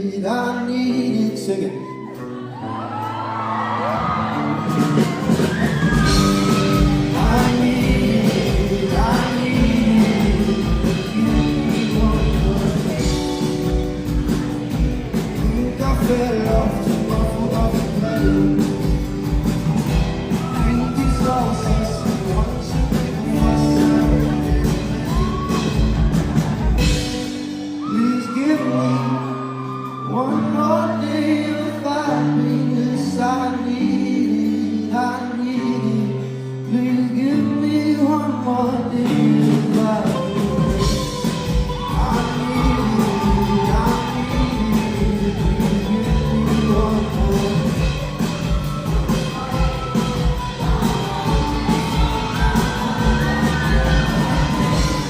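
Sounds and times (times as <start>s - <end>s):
live pop band playing: 0.0s - 55.0s
person singing: 0.0s - 55.0s.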